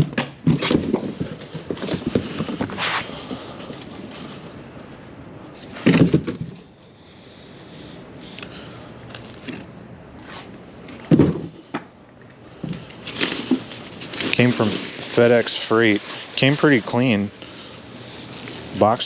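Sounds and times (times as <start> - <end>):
heavy thumps: 11.0 - 11.8
packaging scraping and crackling: 13.0 - 19.0.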